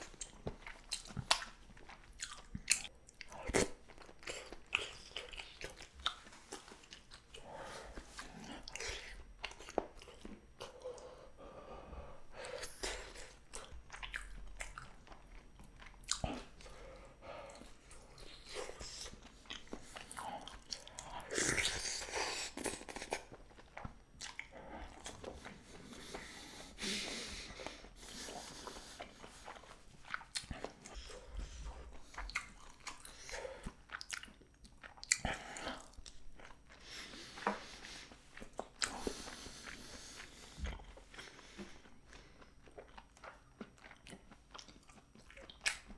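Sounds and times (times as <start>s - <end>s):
wet chewing mouth sounds: 0.0s - 45.9s
slurping: 16.1s - 45.9s.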